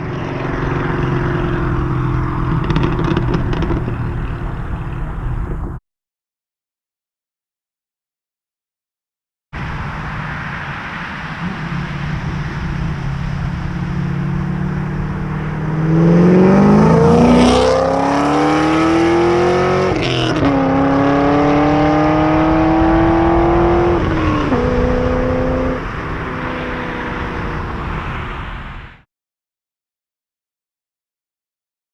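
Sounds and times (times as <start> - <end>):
car engine accelerating: 0.0 - 5.8, 11.0 - 28.4.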